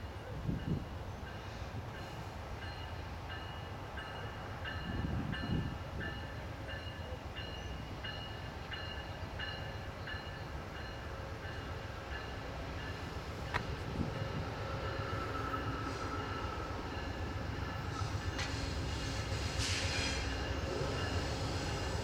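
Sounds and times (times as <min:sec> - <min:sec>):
train bell ringing: 0:00.0 - 0:18.5, 0:20.2 - 0:22.0
diesel locomotive rumble: 0:08.0 - 0:22.0.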